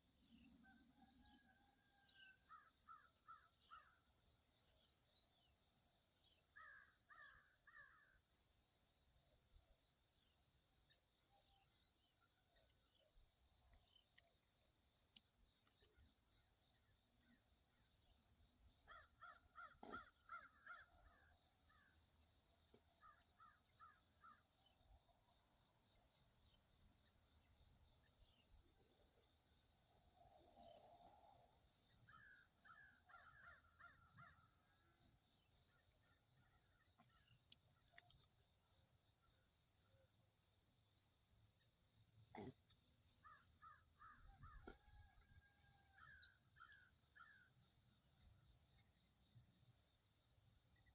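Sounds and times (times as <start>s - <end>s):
faint clicks: 15.1s - 16.2s.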